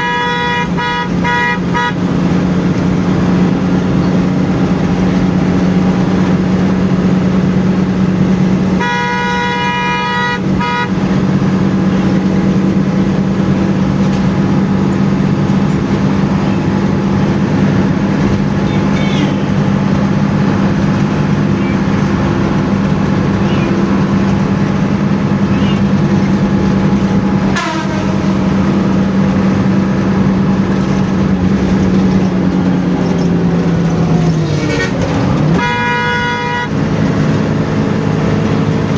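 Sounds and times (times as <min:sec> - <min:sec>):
vehicle horn: 0:00.0 - 0:02.1, 0:08.7 - 0:11.2, 0:18.0 - 0:26.4, 0:27.4 - 0:28.9, 0:35.5 - 0:37.0
bus engine running: 0:00.0 - 0:38.9
road noise: 0:00.0 - 0:38.9.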